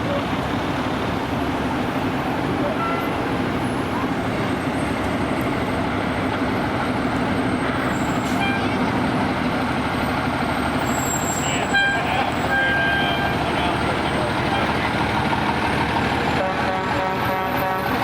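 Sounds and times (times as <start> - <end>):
fire truck engine running: 0.0 - 18.0
fire truck horn: 2.7 - 3.2, 7.7 - 8.9, 10.8 - 14.8, 16.3 - 18.0.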